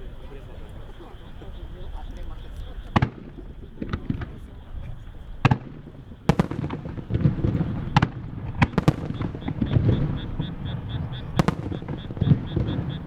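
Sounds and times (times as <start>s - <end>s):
low rumble of bursts and echoes: 2.9s - 13.0s.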